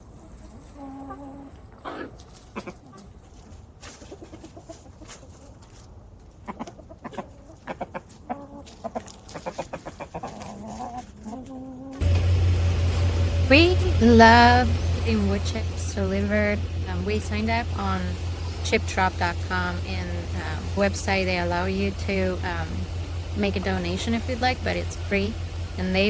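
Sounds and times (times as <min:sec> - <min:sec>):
chickens clucking: 0:00.2 - 0:03.2, 0:03.8 - 0:05.8, 0:06.4 - 0:26.0.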